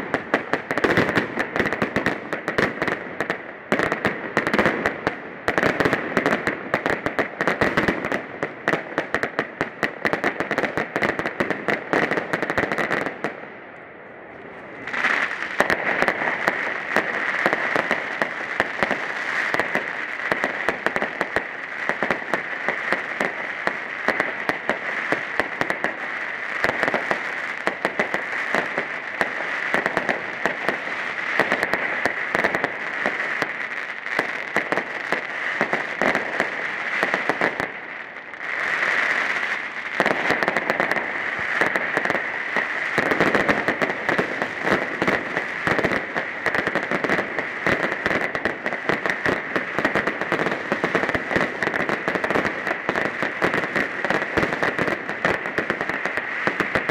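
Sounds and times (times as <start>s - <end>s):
fireworks crackling and banging: 0.0s - 13.7s, 14.3s - 56.9s
firework hiss: 14.8s - 56.9s.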